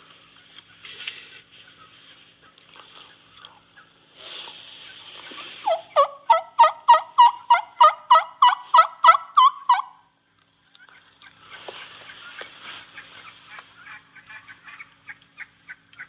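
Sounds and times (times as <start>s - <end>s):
steady hiss: 4.1s - 5.7s
turkey yelping: 5.3s - 10.1s, 10.8s - 16.0s.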